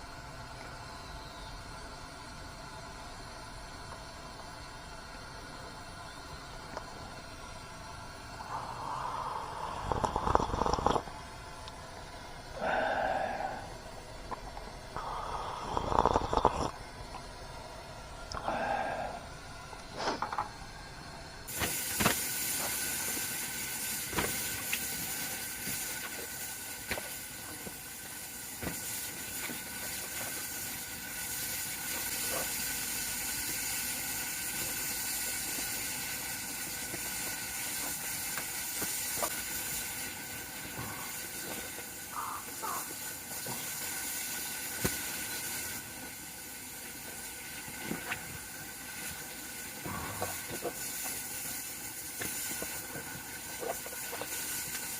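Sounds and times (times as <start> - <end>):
campfire crackling: 6.5 - 54.9.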